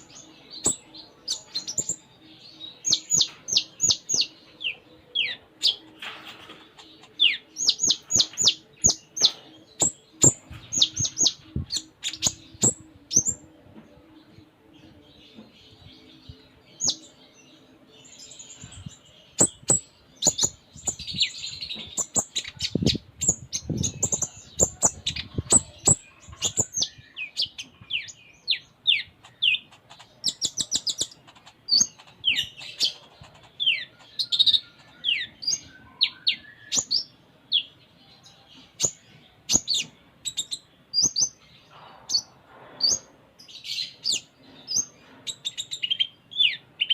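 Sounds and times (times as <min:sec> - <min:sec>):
bird singing high chirps: 0:07.0 - 0:13.5, 0:14.9 - 0:41.5.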